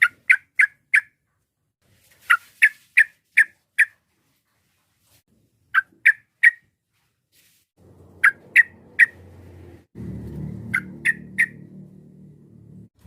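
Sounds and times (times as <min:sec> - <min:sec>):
bird calling in sharp phrases: 0:00.0 - 0:01.2, 0:05.7 - 0:06.7, 0:08.2 - 0:09.3, 0:10.7 - 0:11.6
faint low rumble: 0:07.8 - 0:13.0.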